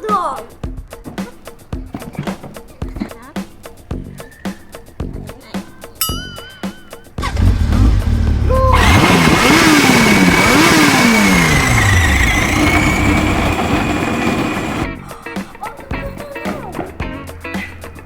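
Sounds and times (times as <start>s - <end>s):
motorcycle engine revving: 7.2s - 14.9s.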